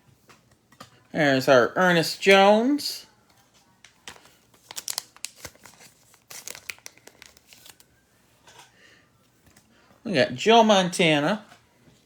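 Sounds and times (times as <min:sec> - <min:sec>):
plastic sleeves crinkling: 0:03.6 - 0:08.0.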